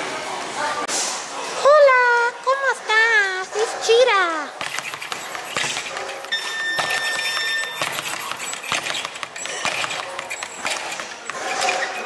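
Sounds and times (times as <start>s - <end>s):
boxing gloves thudding: 4.6s - 12.0s
feet moving on floor: 4.6s - 12.0s
steady beep: 6.3s - 11.1s.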